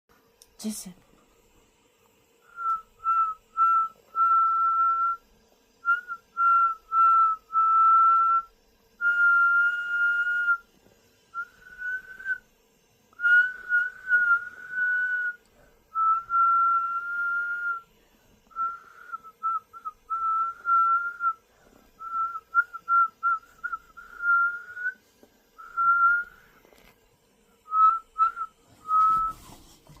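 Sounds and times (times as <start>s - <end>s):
person whistling: 2.5s - 5.2s, 5.8s - 10.7s, 11.4s - 12.4s, 13.2s - 17.8s, 18.5s - 21.4s, 22.0s - 25.0s, 25.6s - 26.6s, 27.7s - 29.6s.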